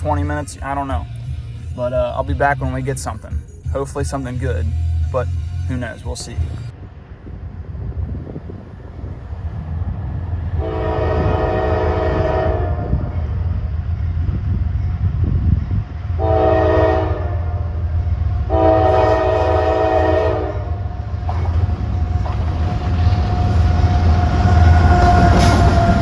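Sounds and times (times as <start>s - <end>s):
train engine and wheels rumbling: 0.0s - 26.0s
train air horn blasts: 10.5s - 13.2s, 16.2s - 22.1s, 23.5s - 26.0s.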